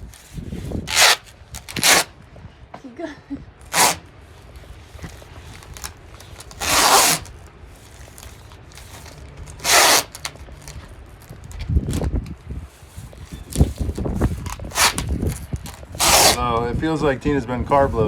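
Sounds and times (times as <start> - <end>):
tape ripped off roll: 0.0 - 2.1, 3.7 - 4.0, 5.0 - 7.3, 8.1 - 10.8, 13.0 - 16.4.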